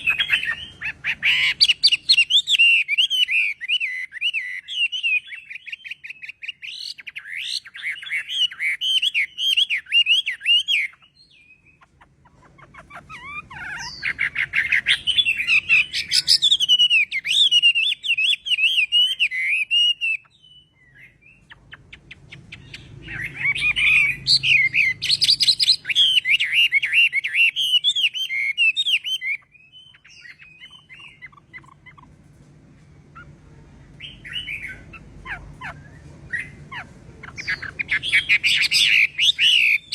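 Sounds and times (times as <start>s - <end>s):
bird warbling: 0.0s - 32.2s, 34.0s - 39.9s.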